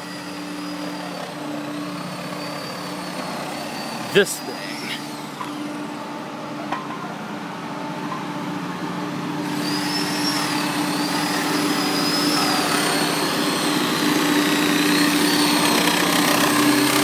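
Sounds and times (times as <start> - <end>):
drying machine humming: 0.0 - 17.0
high wavering whine: 0.0 - 17.0.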